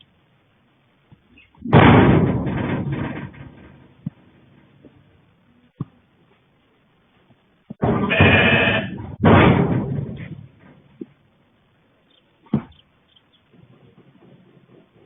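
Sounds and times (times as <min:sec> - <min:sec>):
loud bang with rattle: 0:01.6 - 0:04.8, 0:07.8 - 0:11.0.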